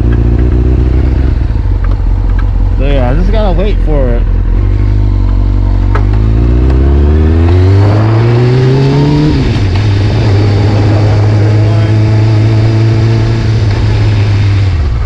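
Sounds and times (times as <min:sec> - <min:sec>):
motorcycle engine idling: 0:00.0 - 0:06.4.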